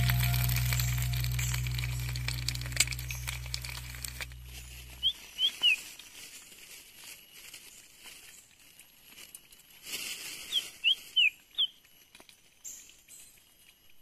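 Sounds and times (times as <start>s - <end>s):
low steady hum: 0.0s - 5.6s
crackling and clicking: 0.0s - 5.7s
bird chirps: 0.0s - 5.8s
forest ambience: 0.0s - 14.0s.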